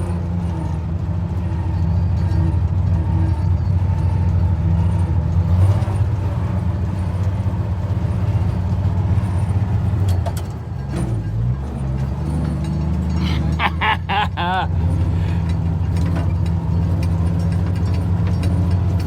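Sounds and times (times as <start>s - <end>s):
truck engine droning: 0.0s - 19.0s.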